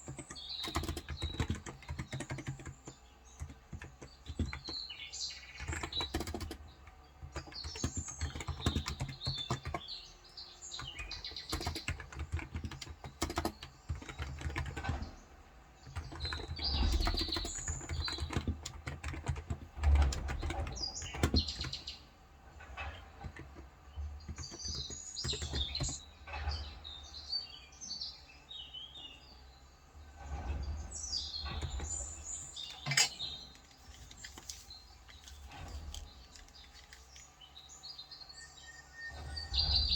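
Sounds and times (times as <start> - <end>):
keyboard typing: 0.0 - 10.0, 10.7 - 15.2, 15.8 - 22.0, 22.6 - 26.1, 31.4 - 37.4
birds chirping: 0.0 - 39.9.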